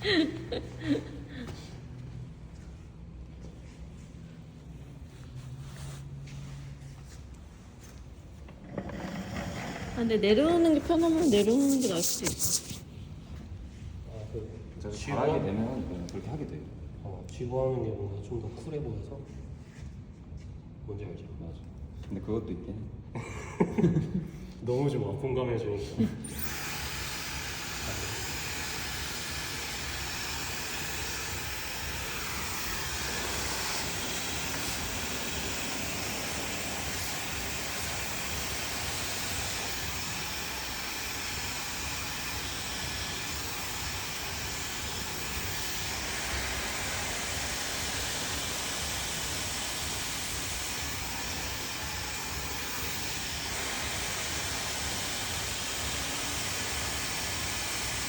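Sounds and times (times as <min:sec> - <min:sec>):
hair dryer blowing air: 0:00.0 - 0:02.7, 0:08.6 - 0:12.9, 0:26.3 - 0:58.0.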